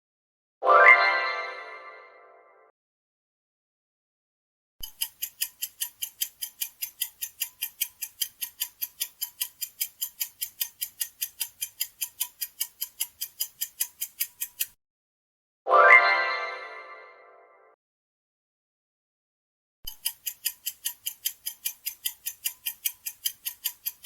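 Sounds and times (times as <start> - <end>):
clock ticking timer: 4.8 - 14.8, 19.9 - 24.0.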